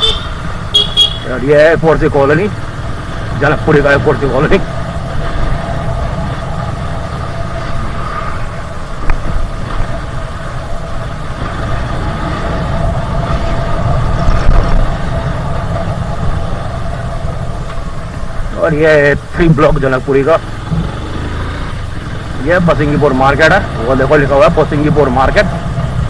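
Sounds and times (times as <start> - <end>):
motorcycle engine running: 0.0 - 26.0
wind rumble on microphone: 3.1 - 19.8.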